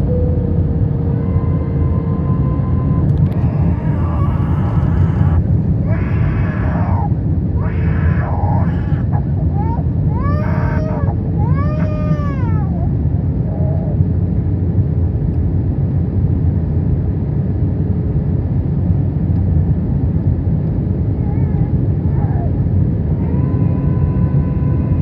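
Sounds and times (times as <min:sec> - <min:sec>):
aircraft cabin engine rumble: 0:00.0 - 0:25.0
faint steady hum: 0:00.0 - 0:25.0
young child crying: 0:01.0 - 0:13.9, 0:21.1 - 0:25.0.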